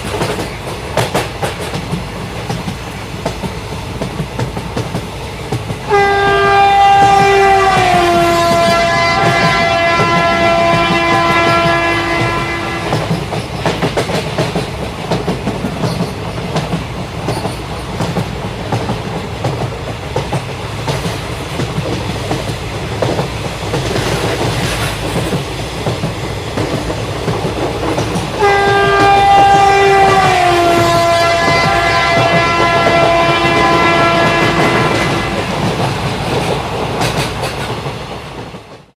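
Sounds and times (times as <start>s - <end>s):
train wheels clattering on rails: 0.0s - 39.0s
train horn: 5.8s - 13.3s, 28.3s - 35.9s.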